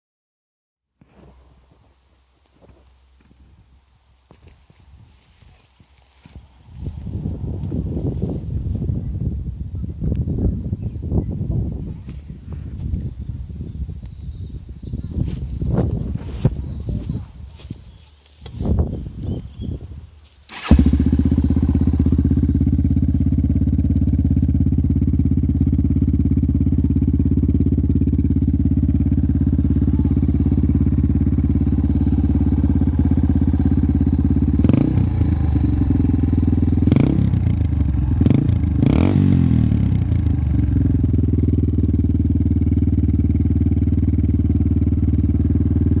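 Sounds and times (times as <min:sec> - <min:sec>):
motorcycle engine idling: 0:04.3 - 0:46.0
engine revving: 0:20.5 - 0:46.0.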